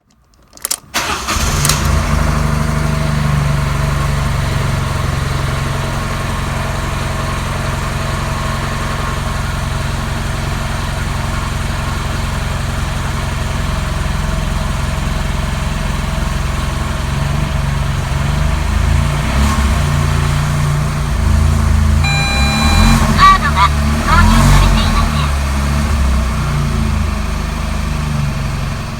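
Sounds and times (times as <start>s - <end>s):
car engine cranking: 0.0s - 5.2s, 18.8s - 26.7s
car engine idling: 0.9s - 28.9s.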